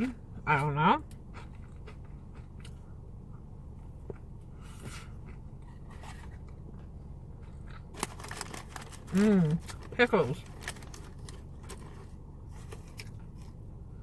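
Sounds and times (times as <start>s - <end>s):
steady low hum: 0.0s - 14.0s
chewing food: 0.6s - 4.5s, 5.1s - 12.0s.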